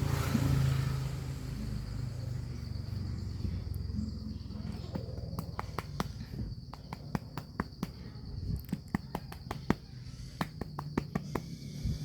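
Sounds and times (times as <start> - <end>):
cricket trill: 0.0 - 12.0
cat purring: 0.4 - 12.0
sharp irregular clicks: 4.9 - 8.0.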